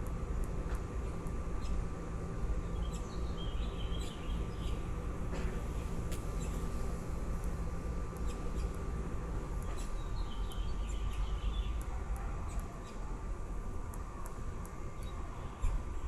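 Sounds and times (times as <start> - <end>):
steady low rumble: 0.0 - 11.5.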